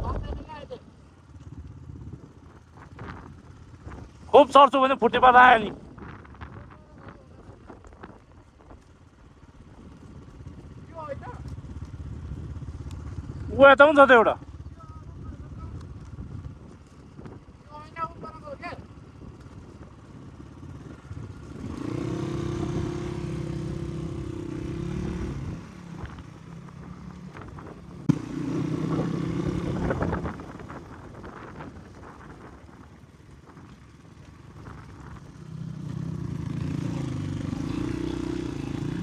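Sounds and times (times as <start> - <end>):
dirt bike engine revving: 20.4 - 30.8, 35.4 - 39.0.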